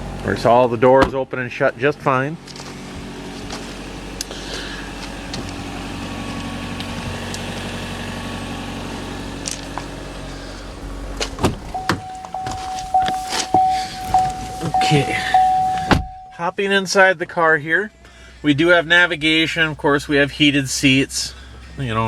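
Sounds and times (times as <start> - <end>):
car engine idling: 0.0 - 22.0
car door clicks and knocks: 11.2 - 14.8, 15.6 - 16.3
pulsing chime tone: 11.8 - 16.4.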